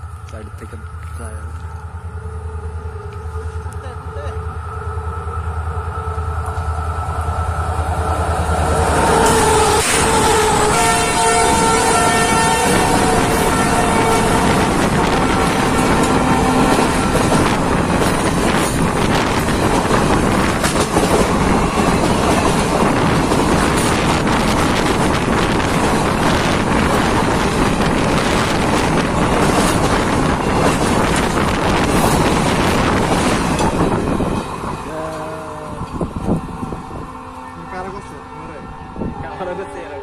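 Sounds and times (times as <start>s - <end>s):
train coaches rumbling past: 0.0s - 40.0s
wind buffeting microphone: 7.1s - 37.9s, 38.6s - 39.6s.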